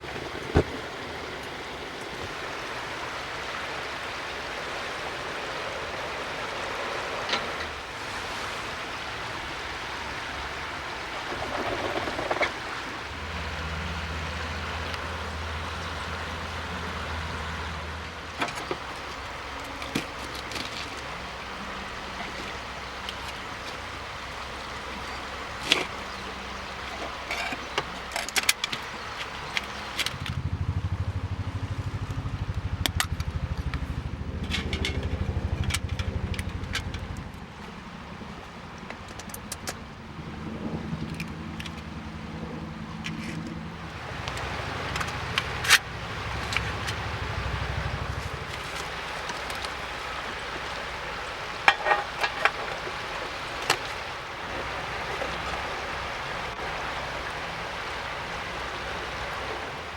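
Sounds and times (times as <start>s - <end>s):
vehicle road and engine noise: 0.0s - 59.9s.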